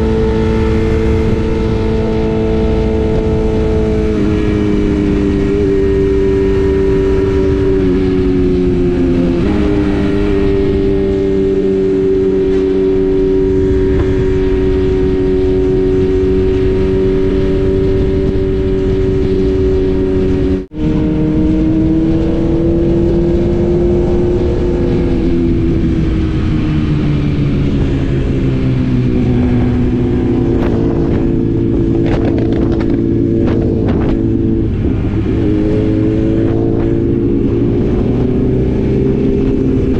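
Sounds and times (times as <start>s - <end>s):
motorcycle engine running: 0.0s - 39.9s
wind rushing: 0.0s - 39.9s.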